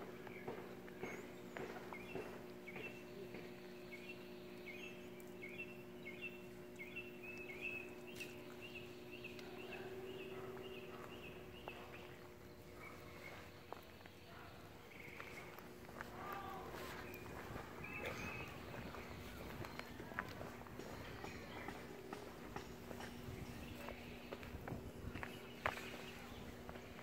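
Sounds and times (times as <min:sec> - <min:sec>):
small bird chirping: 0:00.3 - 0:15.7.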